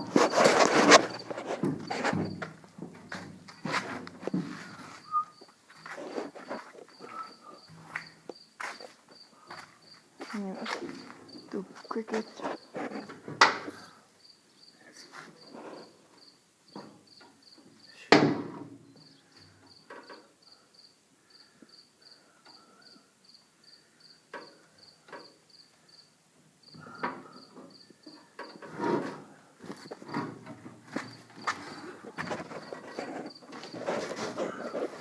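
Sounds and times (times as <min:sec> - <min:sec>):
rustling: 0:00.0 - 0:14.0, 0:28.3 - 0:35.0
cricket chirping: 0:04.5 - 0:18.1, 0:18.8 - 0:30.2, 0:30.8 - 0:35.0.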